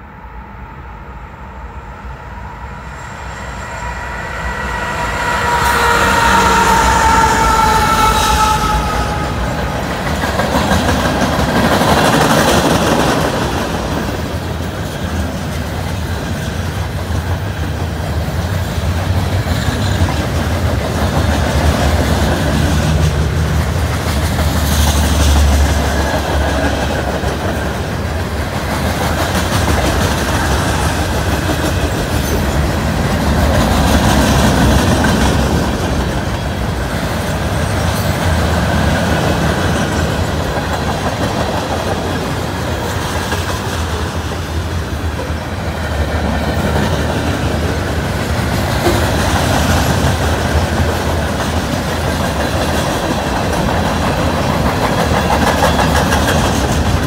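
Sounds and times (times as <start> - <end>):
locomotive horn chord: 0.0 - 10.0
freight cars clickety-clack: 9.3 - 57.0.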